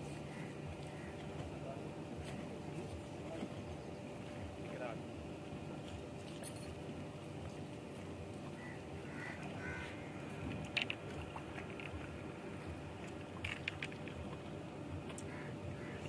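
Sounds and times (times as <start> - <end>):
faint bird calls: 0.0 - 1.6, 8.4 - 10.3, 15.2 - 16.0
outdoor background noise: 0.0 - 16.0.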